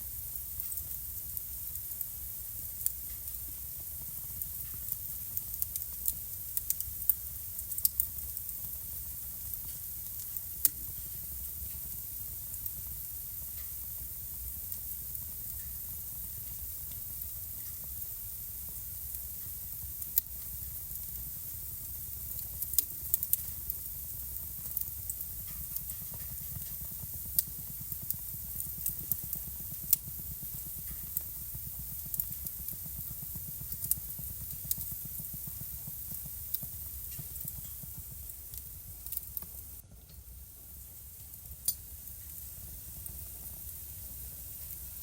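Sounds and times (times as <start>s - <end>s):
low rumble and hiss of fire: 0.0s - 45.0s
wood fire crackling and popping: 0.0s - 45.0s.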